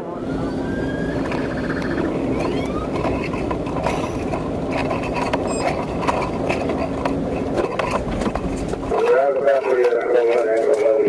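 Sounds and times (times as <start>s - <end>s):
vehicle engine and road rumble: 0.0s - 11.0s
clicks and rattles: 2.9s - 11.0s.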